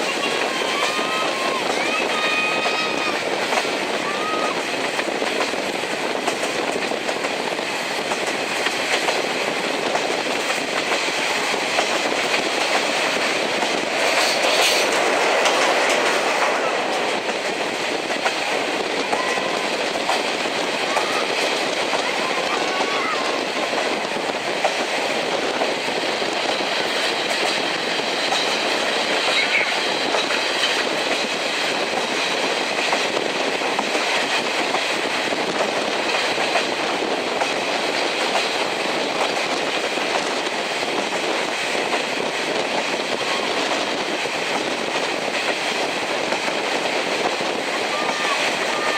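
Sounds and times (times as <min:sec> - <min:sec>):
train rolling rumble: 0:00.0 - 0:48.9
wheels clicking over rail joints: 0:00.0 - 0:48.9.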